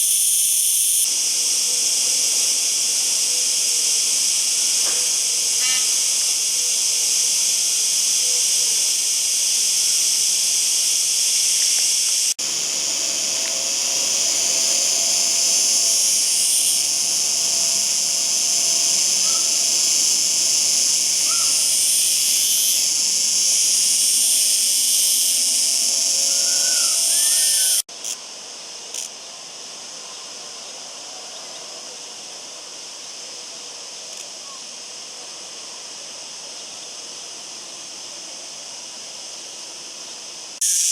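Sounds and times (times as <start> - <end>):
cicada buzzing: 0.0 - 28.2, 38.7 - 40.9.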